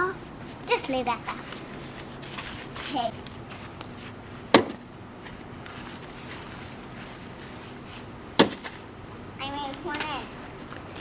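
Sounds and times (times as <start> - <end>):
bean bag thud on board: 4.5 - 4.8.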